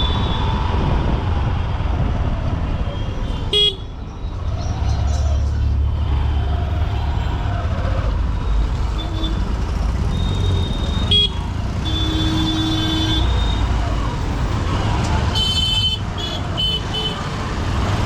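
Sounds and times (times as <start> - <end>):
vehicle horns tooting: 3.3 - 3.9, 10.1 - 13.6, 15.3 - 17.3.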